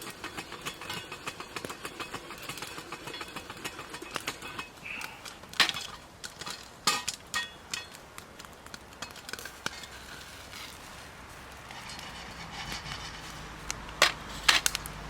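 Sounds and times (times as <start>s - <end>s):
cookware and utensils clinking: 0.0s - 8.0s.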